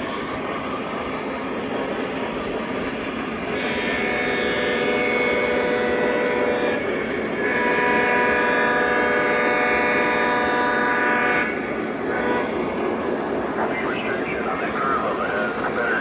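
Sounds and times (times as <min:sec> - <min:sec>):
train rumbling on track: 0:00.0 - 0:16.0
model train horn blasts: 0:03.6 - 0:12.6.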